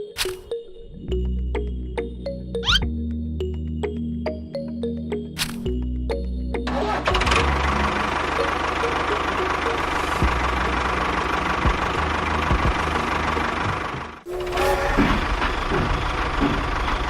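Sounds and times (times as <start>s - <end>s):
engine running with low pulsing: 5.7s - 17.0s.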